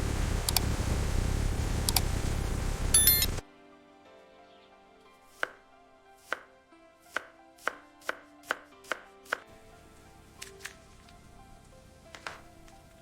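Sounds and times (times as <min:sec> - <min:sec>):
knife chopping on cutting board: 0:07.1 - 0:09.4.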